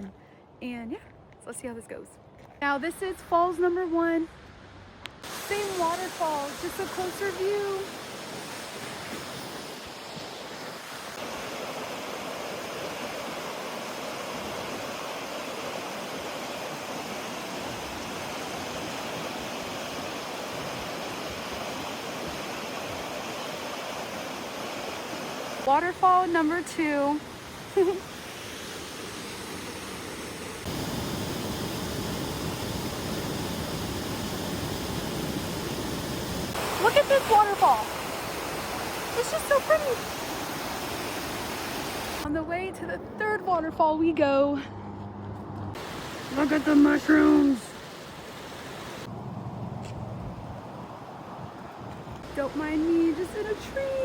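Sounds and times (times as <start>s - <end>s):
waterfall roaring: 5.2s - 42.3s, 45.8s - 49.1s.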